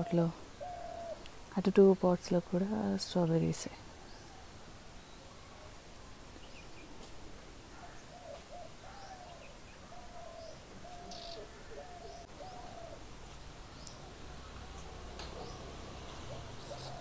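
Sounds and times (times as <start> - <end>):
bird hooting: 0.0 - 1.2, 7.8 - 13.0, 16.3 - 17.0
faint bird chirps: 7.7 - 13.0.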